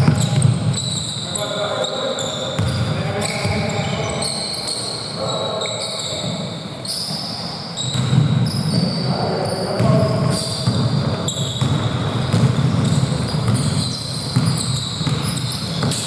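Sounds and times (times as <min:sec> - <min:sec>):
basketball bouncing: 0:00.0 - 0:00.9, 0:02.6 - 0:03.7, 0:07.9 - 0:08.5, 0:09.8 - 0:16.0
shoes squeaking on court: 0:00.0 - 0:16.0.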